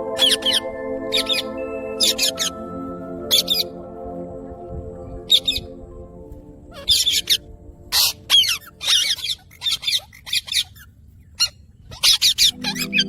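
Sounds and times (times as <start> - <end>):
parakeets squawking and chattering: 0.2 - 2.6, 6.7 - 13.0.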